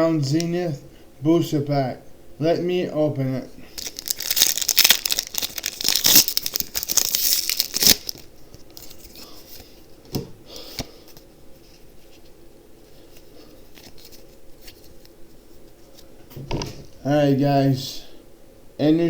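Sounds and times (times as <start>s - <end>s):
foil wrapper tearing and crinkling: 3.7s - 9.2s.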